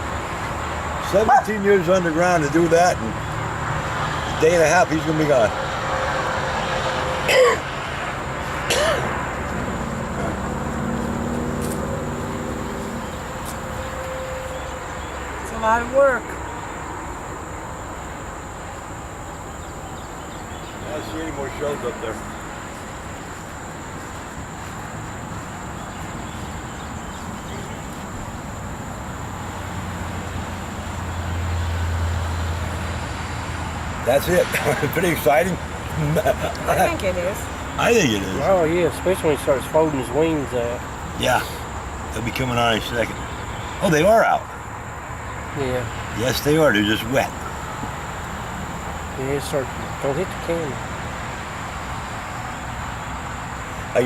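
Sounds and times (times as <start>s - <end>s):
vehicle engine hum: 0.0s - 54.0s
person clearing throat: 7.2s - 7.7s, 8.6s - 9.2s.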